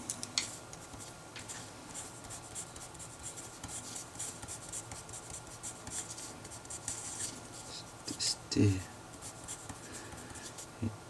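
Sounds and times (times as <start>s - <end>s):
pen scratching while handwriting: 1.9s - 7.7s, 9.2s - 10.6s.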